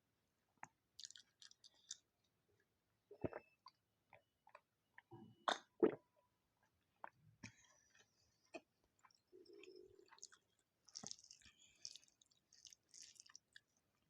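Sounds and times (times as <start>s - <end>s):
close-miked chewing food: 0.6s - 2.1s, 6.6s - 14.0s.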